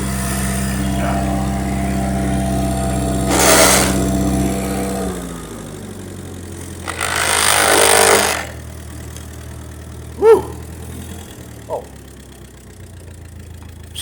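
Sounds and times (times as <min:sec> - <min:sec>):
loud rushing hiss: 0:00.0 - 0:04.8
tractor engine running: 0:00.0 - 0:14.0.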